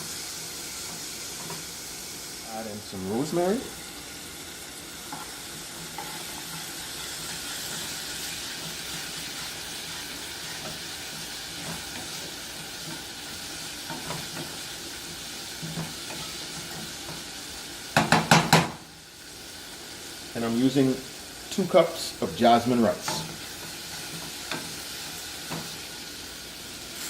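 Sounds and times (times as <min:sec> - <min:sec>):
vegetables sizzling in oil: 0:00.0 - 0:27.0
stirring knocks: 0:17.9 - 0:18.8.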